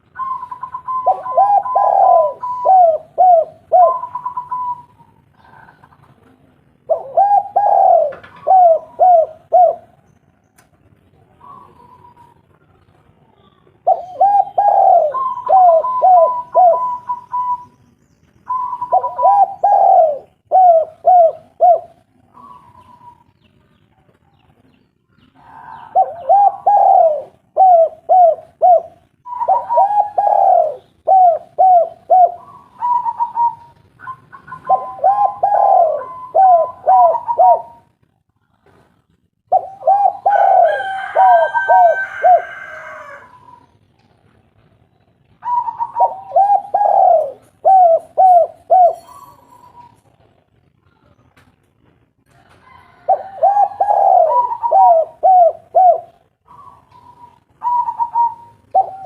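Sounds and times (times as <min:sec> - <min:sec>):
doves cooing: 0:00.0 - 0:10.1, 0:11.2 - 0:12.9, 0:13.7 - 0:17.8, 0:18.5 - 0:23.4, 0:25.2 - 0:37.9, 0:39.4 - 0:43.8, 0:45.3 - 0:50.3, 0:52.3 - 0:59.0
high bird chirping: 0:13.4 - 0:20.5, 0:45.0 - 0:50.2, 0:53.6 - 0:59.0.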